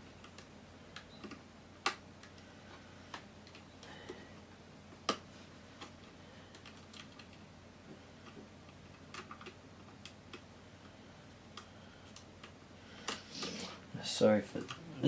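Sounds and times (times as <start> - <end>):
small clicks and taps of parts: 3.1 - 4.2, 5.8 - 13.2.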